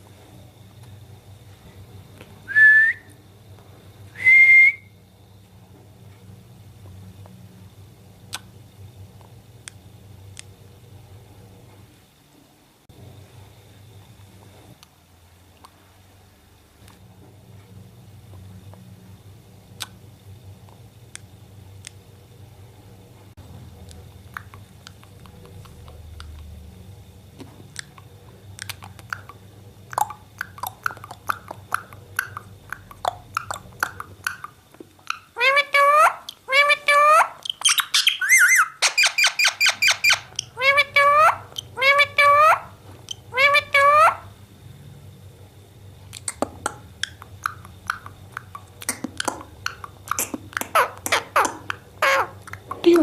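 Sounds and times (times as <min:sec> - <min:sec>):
parrot clicking: 0:27.8 - 0:42.4, 0:46.1 - 0:53.0.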